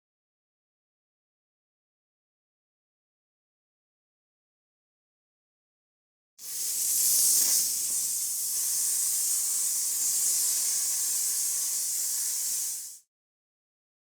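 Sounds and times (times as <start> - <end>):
paint spray hissing: 6.4 - 13.0.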